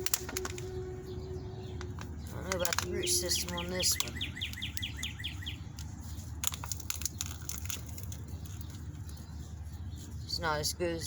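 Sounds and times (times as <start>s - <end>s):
songbird trilling: 0.0s - 6.3s
crackles and clicks: 0.0s - 9.6s
low wind rumble on microphone: 0.0s - 11.0s.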